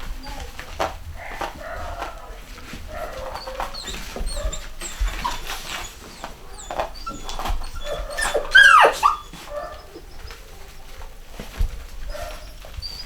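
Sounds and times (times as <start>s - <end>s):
puppy crying: 3.0s - 10.9s
puppies whimpering and squeaking: 3.0s - 13.0s.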